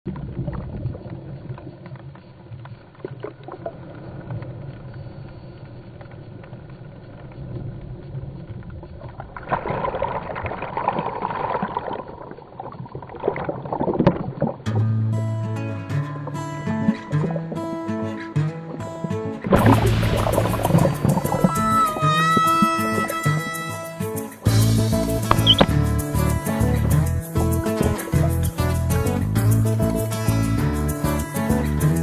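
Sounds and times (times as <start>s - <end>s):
boat engine running: 19.5s - 22.0s
loud rushing noise: 19.5s - 23.1s.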